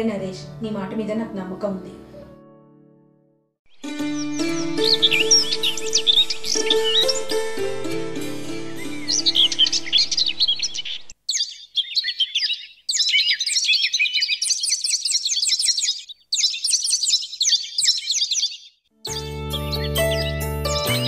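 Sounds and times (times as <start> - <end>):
soft background music: 0.0 - 10.6, 19.0 - 21.0
birds chirping: 3.7 - 21.0.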